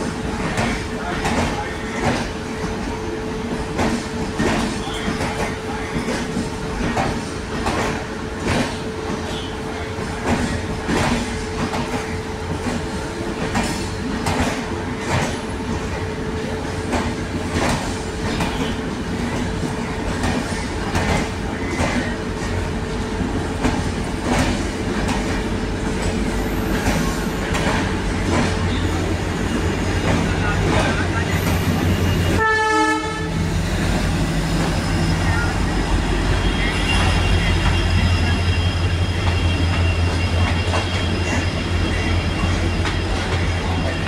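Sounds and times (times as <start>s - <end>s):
train rumble: 0.0s - 44.0s.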